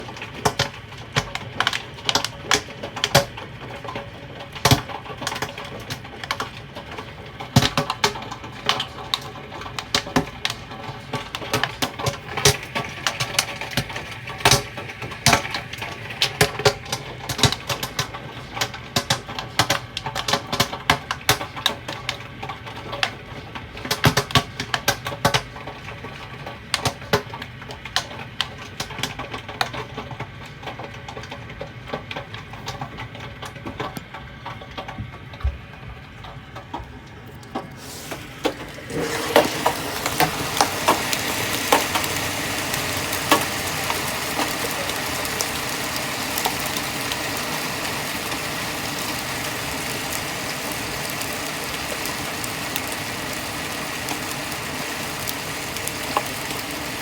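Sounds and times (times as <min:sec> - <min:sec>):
steady hiss: 0:37.7 - 0:57.0
hailstones striking hard surfaces: 0:39.1 - 0:57.0.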